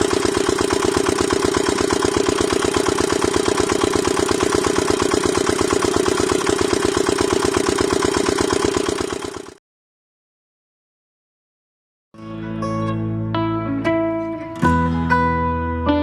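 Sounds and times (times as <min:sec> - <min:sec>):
small diesel engine idling: 0:00.0 - 0:09.6.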